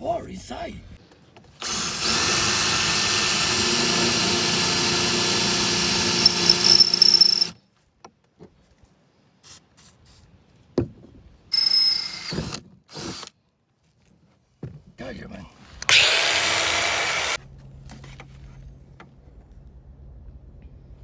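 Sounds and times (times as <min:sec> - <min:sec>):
power drill running: 0:01.6 - 0:07.6, 0:15.8 - 0:17.4.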